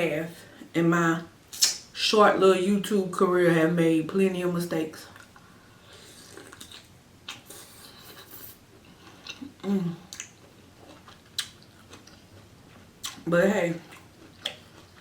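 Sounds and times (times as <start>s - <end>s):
wet chewing sounds: 6.1s - 15.0s
person humming: 9.6s - 10.1s.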